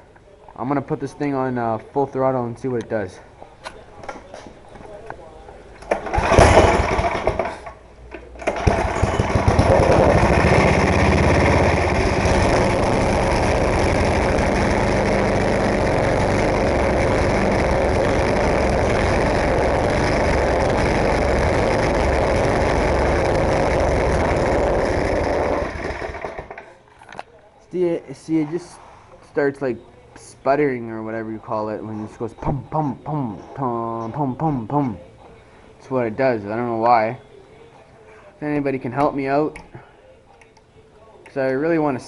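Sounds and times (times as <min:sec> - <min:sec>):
snowblower engine sputtering: 0:05.8 - 0:26.7.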